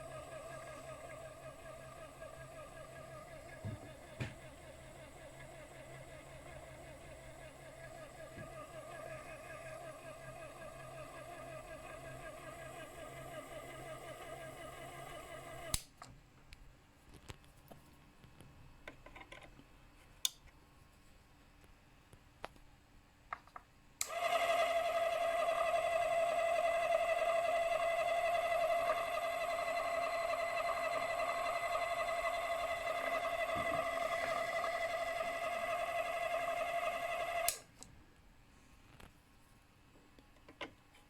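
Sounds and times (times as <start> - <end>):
lathe motor whining: 0.0 - 15.8, 24.0 - 37.6.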